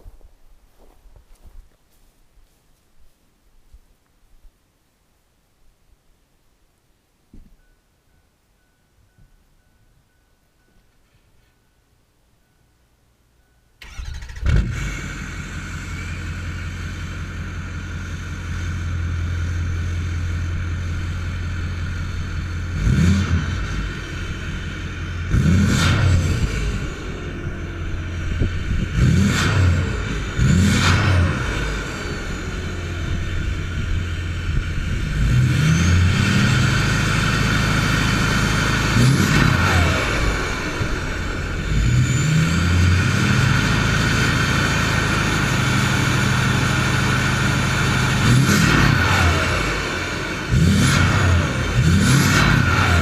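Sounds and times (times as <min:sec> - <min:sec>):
diesel engine revving: 0:13.8 - 0:53.0
steady high whine: 0:15.2 - 0:53.0.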